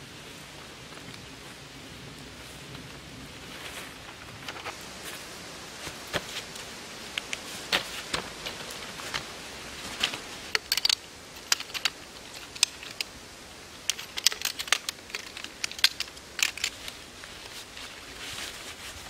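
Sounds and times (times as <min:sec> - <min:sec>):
camp chair poles clicking: 0:05.8 - 0:18.0.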